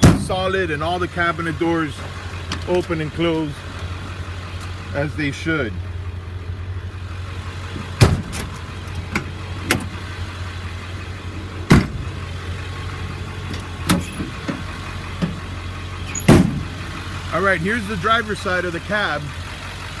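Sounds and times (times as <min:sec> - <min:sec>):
metal cabinet doors banging shut: 0:00.0 - 0:00.4, 0:08.0 - 0:08.6, 0:11.7 - 0:12.2, 0:16.1 - 0:16.8
diesel truck engine idling: 0:00.0 - 0:20.0.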